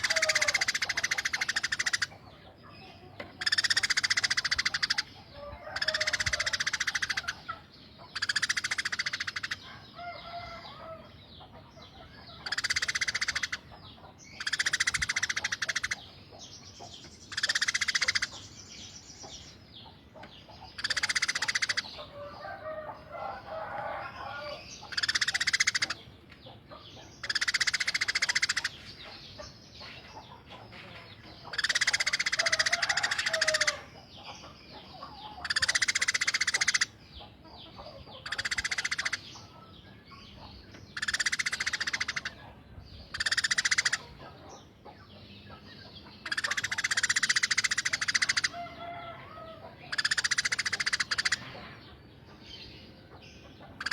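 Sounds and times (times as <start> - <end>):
sparrow harsh chattering: 0.0 - 2.3, 3.3 - 9.7, 11.9 - 16.2, 16.8 - 19.5, 20.4 - 22.1, 24.2 - 26.1, 27.0 - 30.3, 31.4 - 37.0, 37.7 - 39.5, 40.1 - 44.2, 45.6 - 48.6, 49.8 - 51.7, 53.3 - 53.9.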